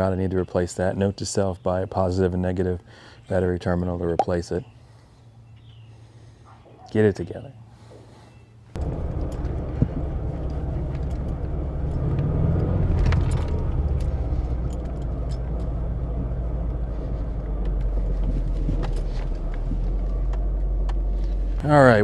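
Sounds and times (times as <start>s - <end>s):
car engine rumble: 7.8s - 22.0s
light clicks and rattles: 8.8s - 21.3s.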